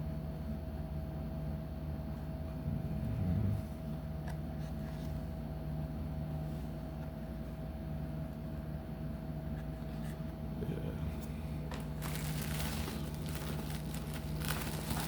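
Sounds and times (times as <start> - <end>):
steady low hum: 0.0 - 15.0
packaging crinkling: 11.7 - 15.0.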